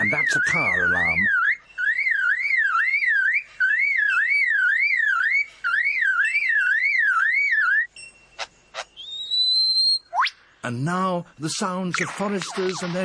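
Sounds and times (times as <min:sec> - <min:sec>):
bird mimicking car alarm: 0:00.0 - 0:10.4.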